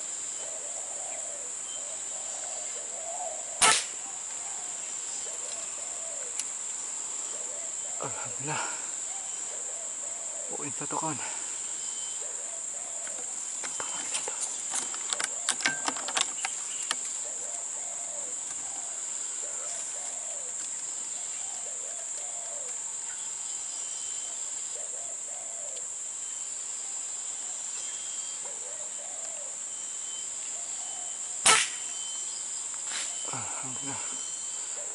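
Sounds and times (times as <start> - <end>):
doves cooing: 0.0 - 26.1, 26.8 - 31.8, 33.0 - 34.9
high insect drone: 0.0 - 34.9
sharp clicks and knocks: 14.7 - 17.1.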